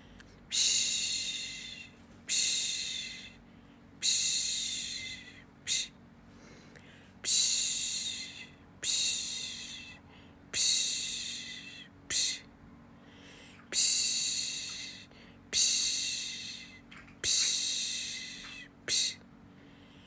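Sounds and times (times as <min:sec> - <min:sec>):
person shushing: 0:00.5 - 0:03.4, 0:04.0 - 0:06.0, 0:07.2 - 0:10.0, 0:10.6 - 0:12.5, 0:13.8 - 0:19.2.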